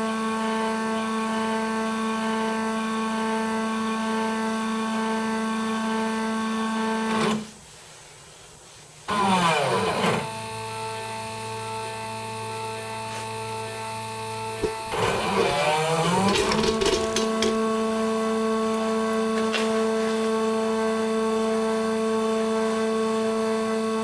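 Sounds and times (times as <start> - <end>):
stepper motors whining: 9.1 - 21.2.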